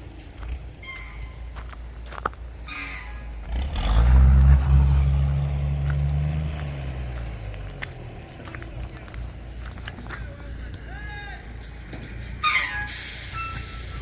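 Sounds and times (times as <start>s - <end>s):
vehicle engine running: 0.0s - 12.5s.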